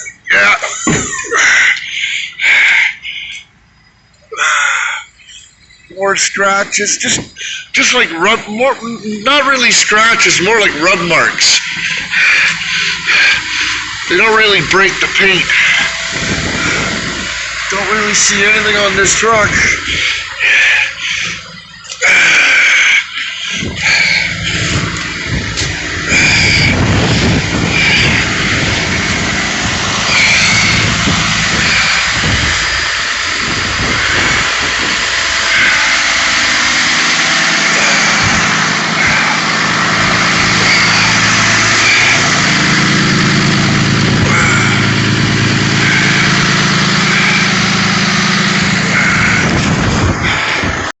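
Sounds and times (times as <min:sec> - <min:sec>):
truck engine idling: 0:00.0 - 0:51.0
wind noise on microphone: 0:15.8 - 0:17.4, 0:23.5 - 0:35.9, 0:48.8 - 0:51.0.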